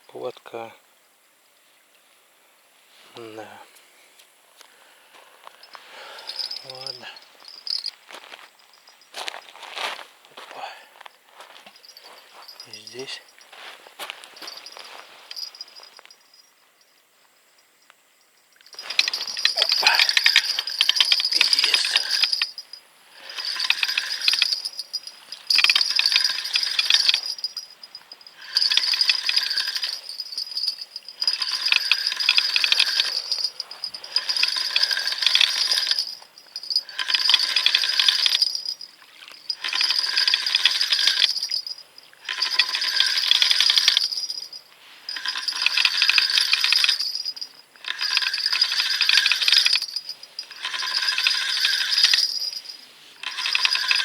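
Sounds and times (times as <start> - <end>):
fishing reel cranking whir: 18.8 - 38.8, 39.5 - 52.6, 53.2 - 54.0.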